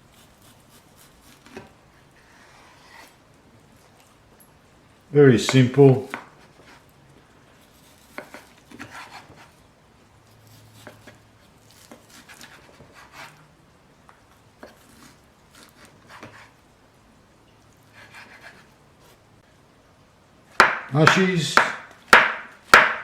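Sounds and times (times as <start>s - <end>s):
knife tapping cutting board: 5.4s - 6.3s, 20.6s - 23.0s.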